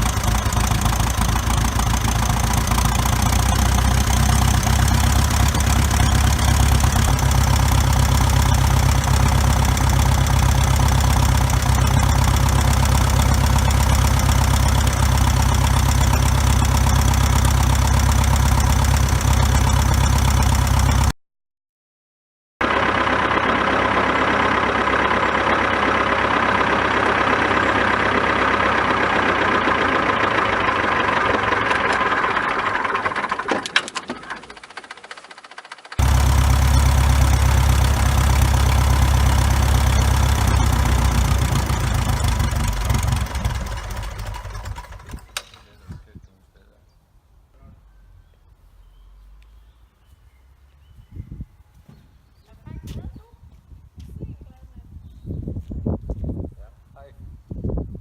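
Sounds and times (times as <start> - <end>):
aircraft engine running: 0.0 - 21.1, 22.6 - 45.8.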